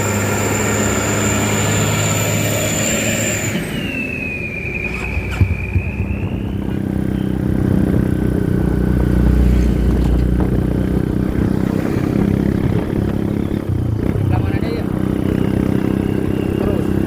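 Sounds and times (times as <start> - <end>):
high squeal: 0.0 - 7.6, 15.6 - 17.0
excavator diesel engine running: 0.0 - 10.5.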